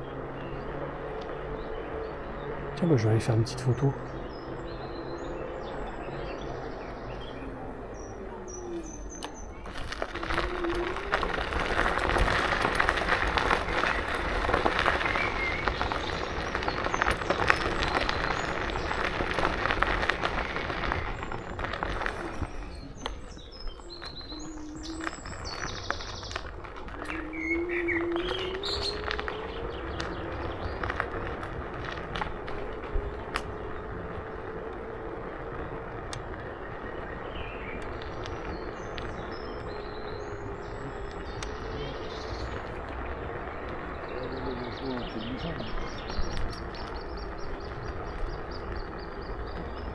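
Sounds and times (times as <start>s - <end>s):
birds chirping: 0.0s - 49.9s
electric scooter motor whine: 0.0s - 49.9s
tyre noise: 0.0s - 49.9s
wind noise: 0.0s - 49.9s.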